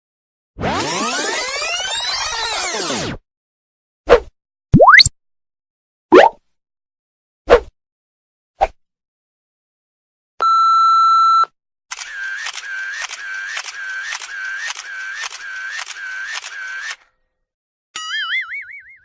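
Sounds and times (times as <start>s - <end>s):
short plop: 4.8s - 5.1s, 6.1s - 6.4s
fast run of clicks: 11.9s - 17.0s.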